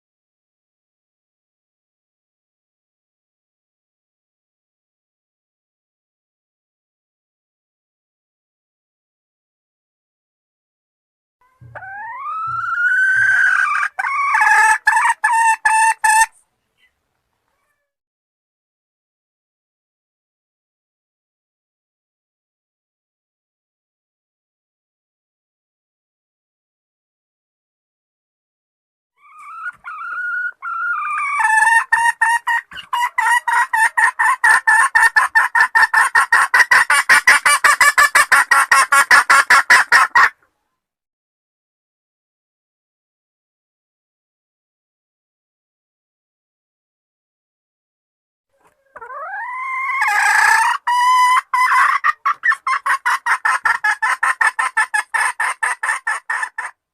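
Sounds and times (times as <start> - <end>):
junglefowl hen calling: 11.4 - 17.0, 29.2 - 40.4, 48.5 - 56.8.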